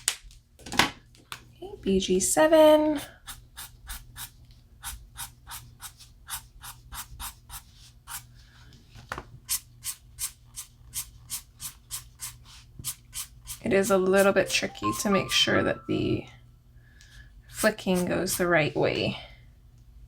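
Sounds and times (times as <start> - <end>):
marker scratching on paper: 3.2 - 8.3, 9.5 - 14.5, 17.6 - 18.5.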